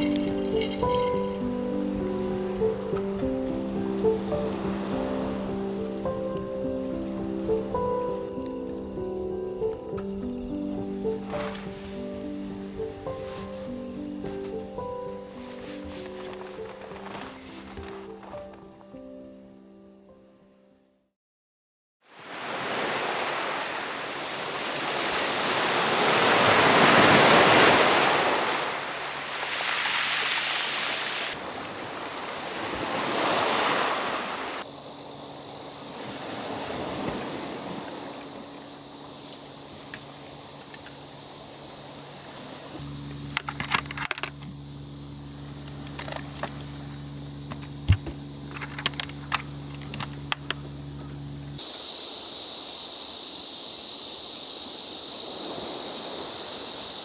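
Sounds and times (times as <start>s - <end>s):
sea waves washing onto shore: 22.1s - 34.7s, 35.8s - 39.1s
steady low hum: 34.6s - 51.6s.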